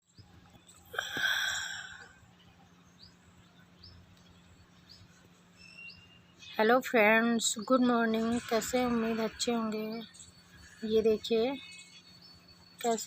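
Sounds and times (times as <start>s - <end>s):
faint bird chirps: 0.0s - 13.0s
breathy rush of noise: 0.9s - 2.2s.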